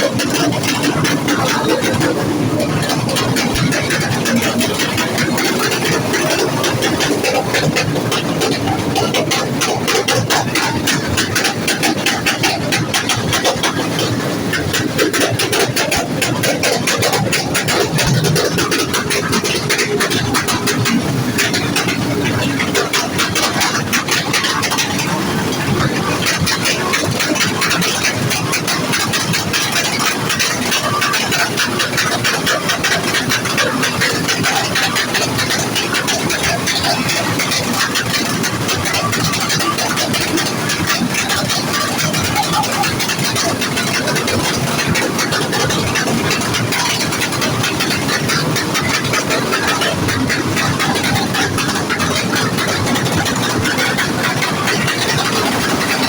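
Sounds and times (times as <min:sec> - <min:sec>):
vehicle engine running loudly: 0:00.0 - 0:56.0.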